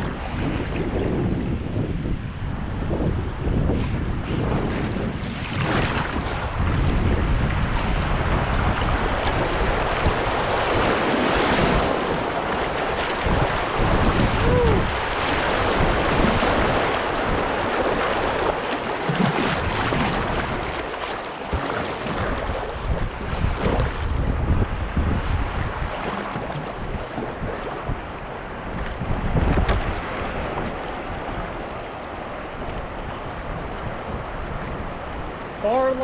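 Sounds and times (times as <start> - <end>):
wind buffeting microphone: 0.0 - 36.0
river water rushing: 7.6 - 24.1, 25.0 - 36.0.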